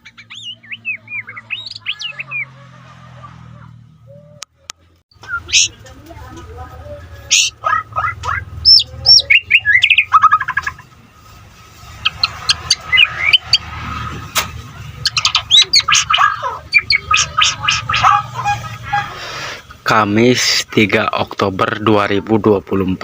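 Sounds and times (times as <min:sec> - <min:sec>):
songbird singing: 0:00.0 - 0:02.8, 0:03.9 - 0:11.0, 0:11.9 - 0:13.9, 0:14.8 - 0:19.5.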